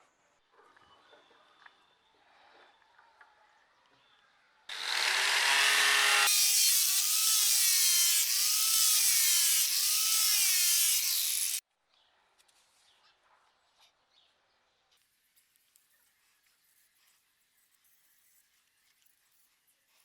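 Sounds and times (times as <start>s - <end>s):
power tool grinding: 4.7s - 11.6s.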